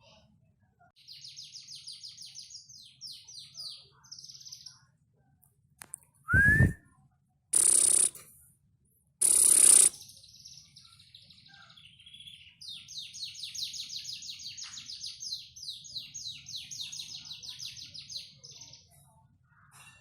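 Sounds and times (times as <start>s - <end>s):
canary singing: 7.6s - 8.1s, 9.2s - 10.0s.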